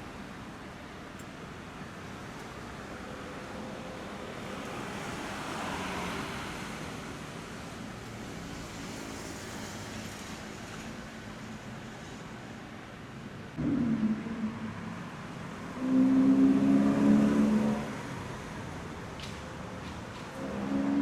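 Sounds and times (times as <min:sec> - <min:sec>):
road traffic noise: 0:00.0 - 0:21.0
vehicle passing: 0:13.6 - 0:19.0.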